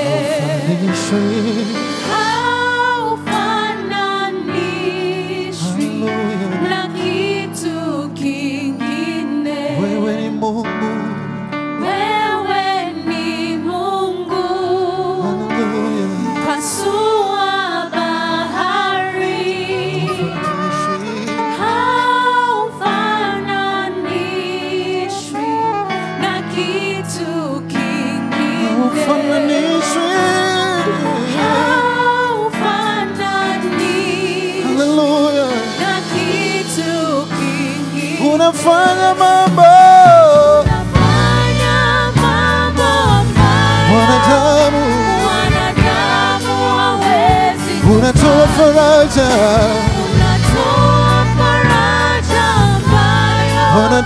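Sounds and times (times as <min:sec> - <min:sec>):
worship band playing: 0:00.0 - 0:54.0
person singing praise song: 0:18.4 - 0:23.6, 0:28.0 - 0:54.0.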